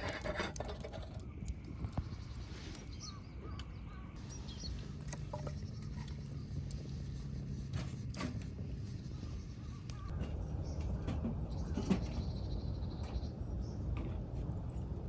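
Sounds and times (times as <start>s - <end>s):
steady low rumble: 0.9s - 15.0s
bird chirps: 1.8s - 6.7s.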